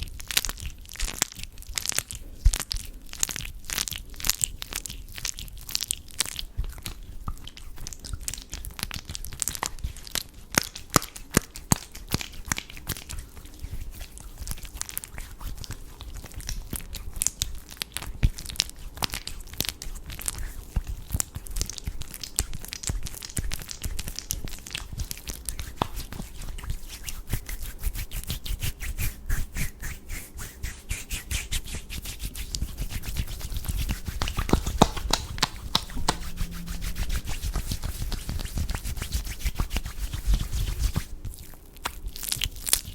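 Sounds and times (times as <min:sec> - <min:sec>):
soft crackles and clicks: 0:00.1 - 0:29.6, 0:31.4 - 0:42.9
skin rubbing and fingers moving: 0:09.4 - 0:42.9.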